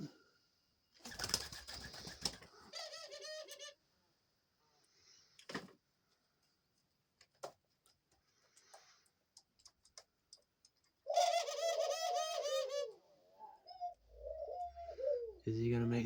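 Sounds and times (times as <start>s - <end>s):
faint taps and clicks: 7.2s - 11.0s
dove cooing: 11.0s - 16.0s.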